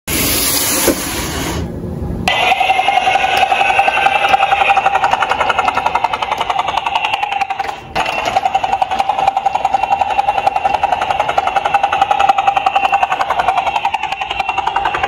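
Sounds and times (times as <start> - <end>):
toy police siren: 2.3 - 15.0.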